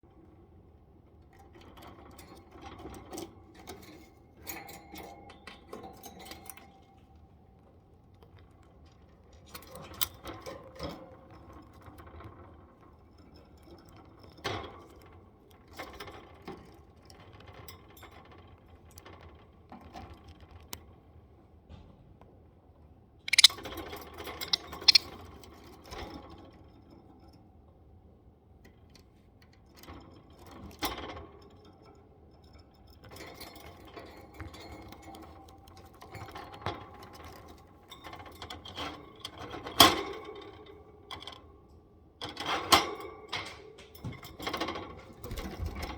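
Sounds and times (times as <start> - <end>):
bird beak tapping and clicking: 23.3 - 23.5, 24.5 - 25.0.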